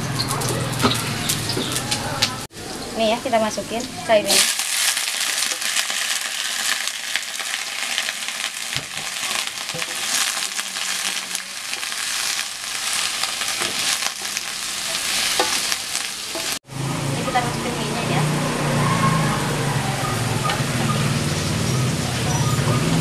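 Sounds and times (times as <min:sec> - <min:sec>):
vegetables sizzling in oil: 0:02.7 - 0:16.6.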